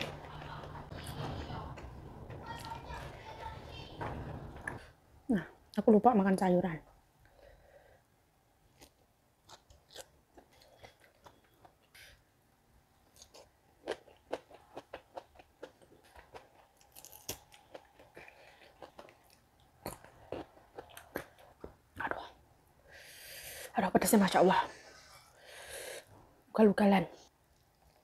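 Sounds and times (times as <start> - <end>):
person chewing crunchy food: 8.7 - 12.2, 13.0 - 21.8.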